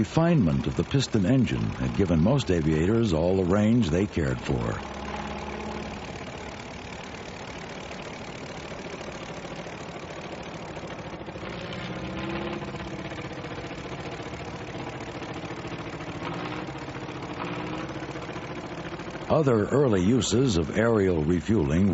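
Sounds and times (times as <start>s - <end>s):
piston aircraft engine droning: 0.0s - 21.9s.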